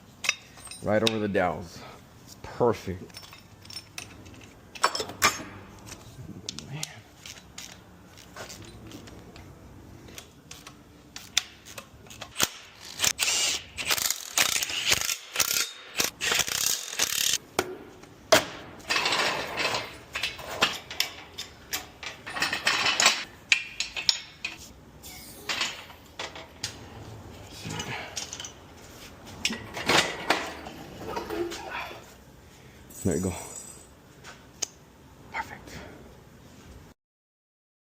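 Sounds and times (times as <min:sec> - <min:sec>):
ratchet wrench clicking: 0:10.5 - 0:17.4.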